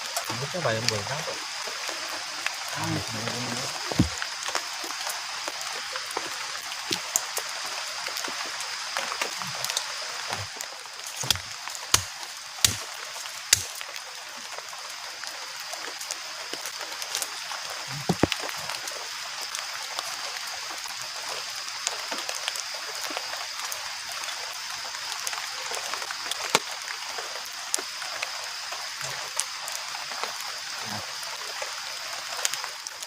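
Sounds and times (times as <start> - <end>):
rain falling: 0.0 - 33.0
sharp knocks: 4.0 - 4.2, 11.2 - 12.8.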